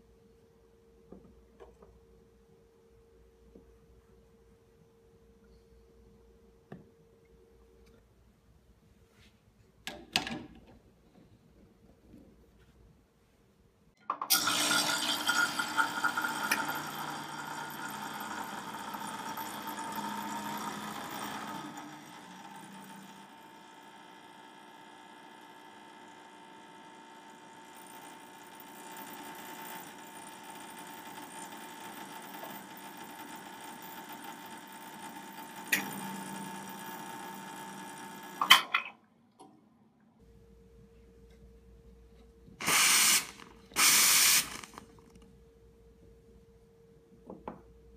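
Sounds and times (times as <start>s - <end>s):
espresso machine pump buzzing: 14.3s - 38.6s, 42.6s - 45.0s.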